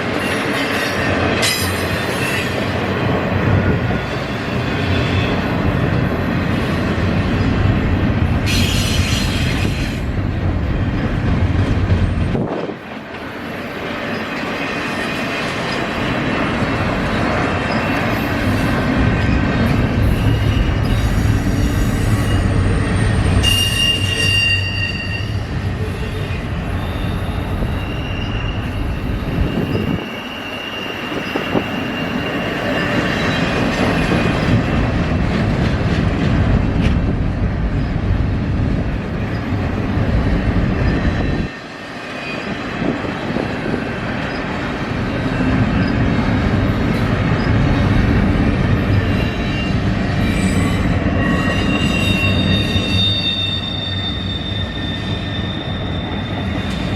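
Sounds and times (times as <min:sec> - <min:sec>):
train wheels rumbling on rail: 0:00.0 - 0:56.9
high-pitched wheel squeal: 0:20.1 - 0:33.5, 0:49.0 - 0:56.9.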